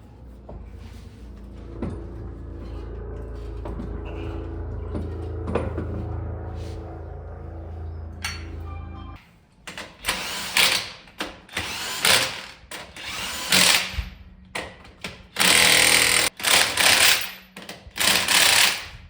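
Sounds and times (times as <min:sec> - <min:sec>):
faint low hum: 0:00.0 - 0:09.3
power tool bursts: 0:10.0 - 0:14.0, 0:15.4 - 0:17.4.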